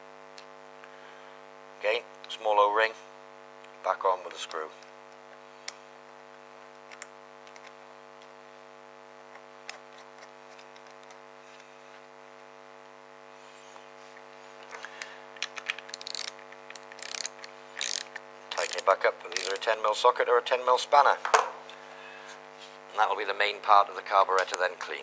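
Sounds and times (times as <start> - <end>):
steady electrical hum: 0.0 - 25.0
hand tool clicking and rattling: 14.7 - 19.7.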